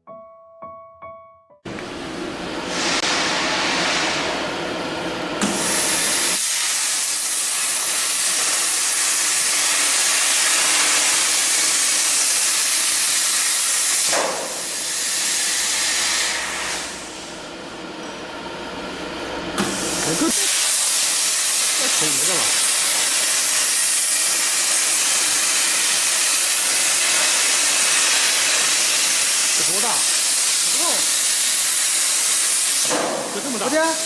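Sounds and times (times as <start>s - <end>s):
plasma cutter hissing: 5.4s - 17.3s, 19.6s - 34.0s.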